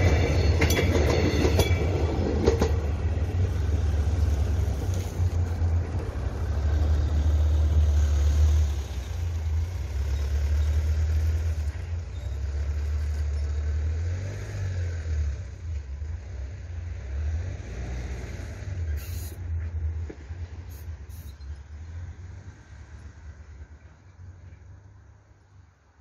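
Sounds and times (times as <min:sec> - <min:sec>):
diesel train rumble: 0:00.0 - 0:26.0.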